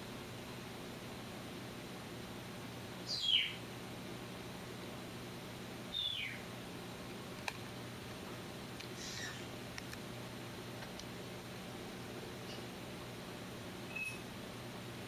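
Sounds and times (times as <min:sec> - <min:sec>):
aquarium filter hum: 0:00.0 - 0:15.0
bird chirping: 0:03.1 - 0:03.6, 0:05.9 - 0:06.4
click: 0:09.8 - 0:10.0.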